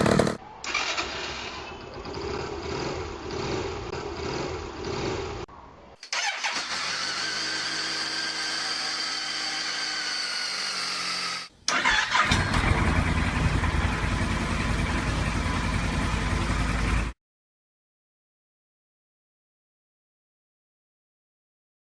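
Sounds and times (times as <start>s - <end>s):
motorcycle engine running steadily: 0.0s - 0.4s, 12.6s - 17.1s
rough motorcycle engine: 0.0s - 0.4s, 2.0s - 5.4s, 12.2s - 17.1s.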